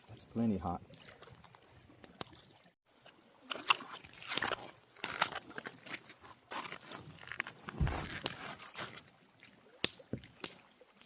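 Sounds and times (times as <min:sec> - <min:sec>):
crunching and rustling: 0:03.4 - 0:09.1.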